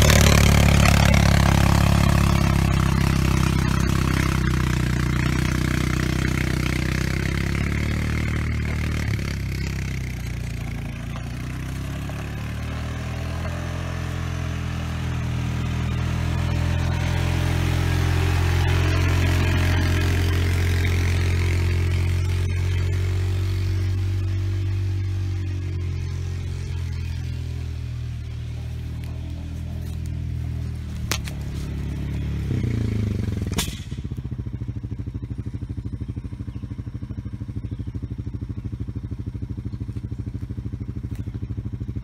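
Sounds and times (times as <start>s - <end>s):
quad bike engine under load: 0.0s - 42.0s
faint implement clatter on dirt: 8.5s - 12.4s, 28.6s - 32.4s.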